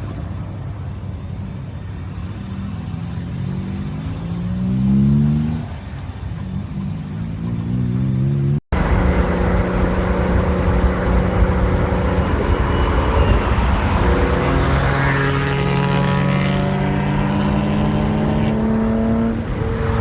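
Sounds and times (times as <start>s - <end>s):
car engine revving: 7.7s - 20.0s
car engine droning: 8.7s - 20.0s.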